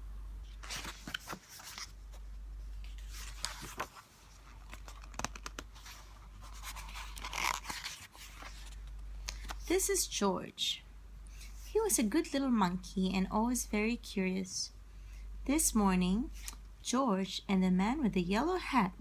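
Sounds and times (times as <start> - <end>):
steady low hum: 0.0 - 19.0
rustling handling noise: 0.4 - 9.9.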